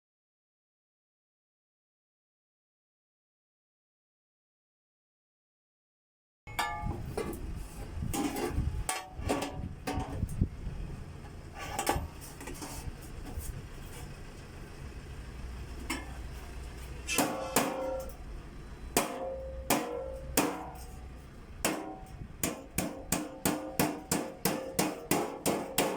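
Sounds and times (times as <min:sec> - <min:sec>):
hammering on sheet metal duct: 0:17.1 - 0:18.2, 0:19.0 - 0:21.0, 0:21.6 - 0:25.9.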